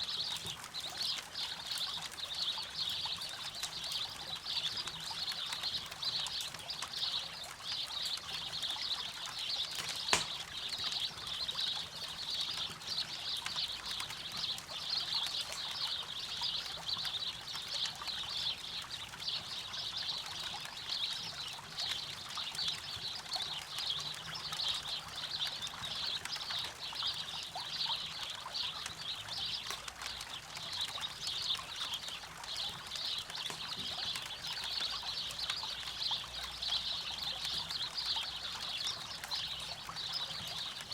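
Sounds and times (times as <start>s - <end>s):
fire crackling: 8.8s - 10.8s, 30.8s - 35.6s
sharp loud pop: 9.8s - 10.4s.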